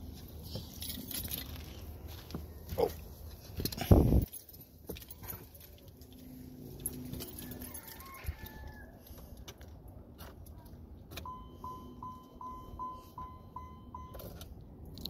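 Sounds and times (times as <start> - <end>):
rustling and shuffling: 0.0 - 11.1.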